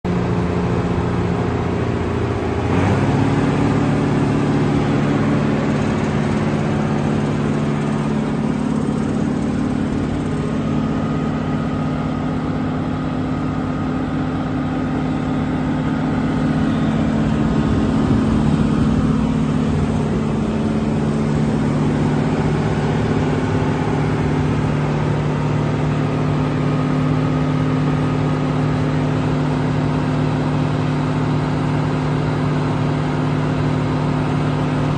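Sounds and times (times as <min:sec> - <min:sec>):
dump truck diesel engine running: 0:00.1 - 0:34.9.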